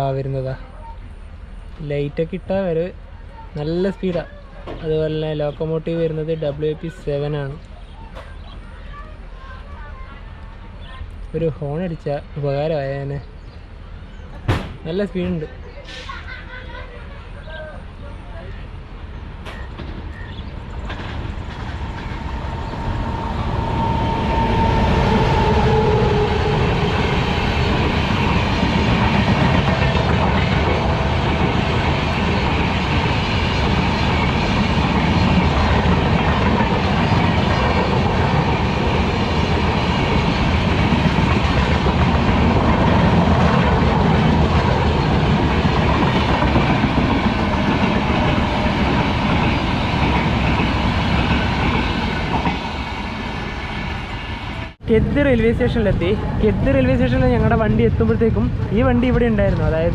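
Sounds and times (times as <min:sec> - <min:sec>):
train passing at speed: 0:12.6 - 0:59.9
coaches clattering over rail joints: 0:19.4 - 0:24.0.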